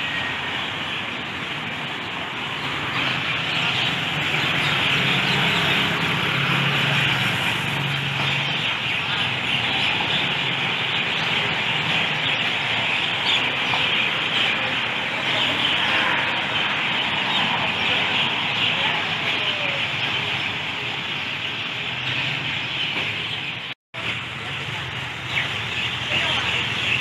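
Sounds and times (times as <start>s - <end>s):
flock of birds twittering: 0.0s - 27.0s
vehicle engine hum passing: 1.9s - 12.4s.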